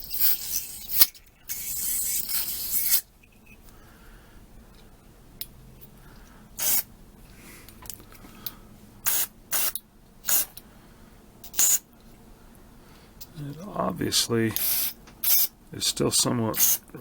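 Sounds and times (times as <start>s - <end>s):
aerosol spray hissing bursts: 0.1s - 3.0s, 6.6s - 6.9s, 9.0s - 10.5s, 11.6s - 11.8s, 14.6s - 15.5s, 16.6s - 16.9s.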